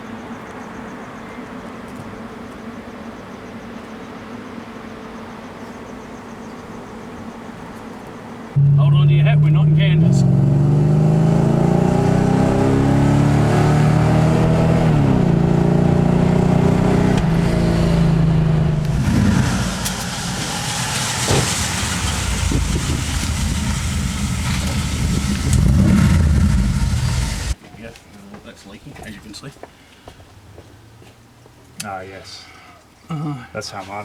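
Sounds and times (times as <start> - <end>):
car engine accelerating hard: 8.6 - 27.6.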